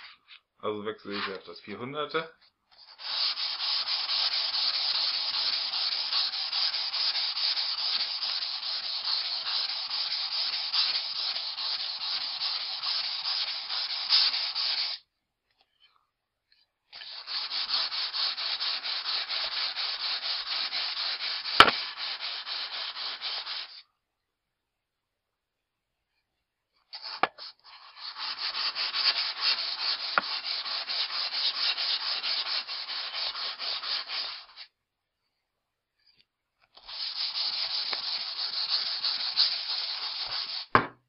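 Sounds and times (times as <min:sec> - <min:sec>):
axe rubbing on sandpaper: 0:02.8 - 0:15.0, 0:17.0 - 0:23.8, 0:26.9 - 0:34.7, 0:36.8 - 0:40.8.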